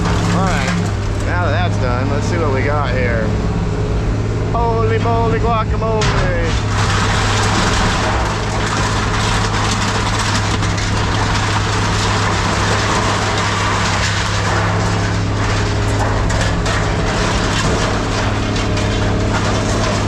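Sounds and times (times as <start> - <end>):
heavy machinery humming: 0.0 - 20.0.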